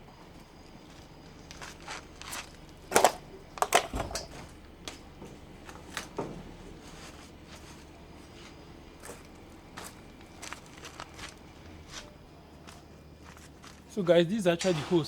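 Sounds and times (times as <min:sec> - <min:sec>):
objects clicking and knocking: 0:02.3 - 0:04.5.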